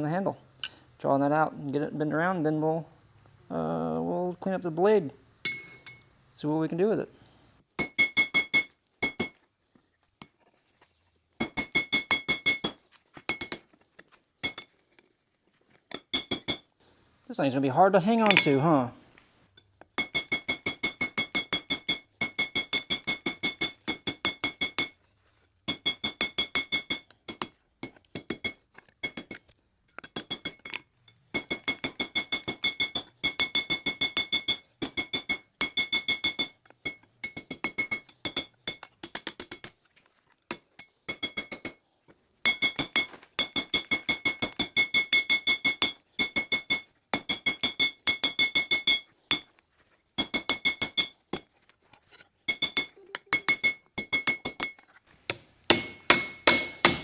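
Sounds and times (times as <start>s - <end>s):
anvil ringing: 5.5s - 6.1s, 18.1s - 18.9s, 55.3s - 57.0s
hammer striking anvil: 5.5s - 6.1s, 18.1s - 18.9s, 55.3s - 57.0s.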